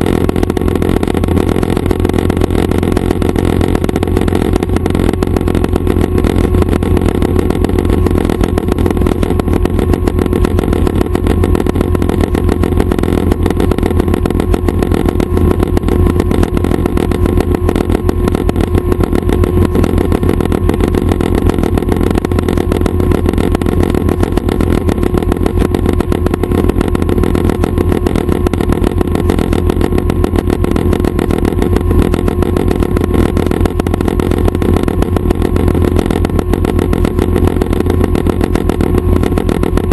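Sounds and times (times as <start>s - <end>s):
helicopter engine and rotors droning: 0.0s - 39.9s.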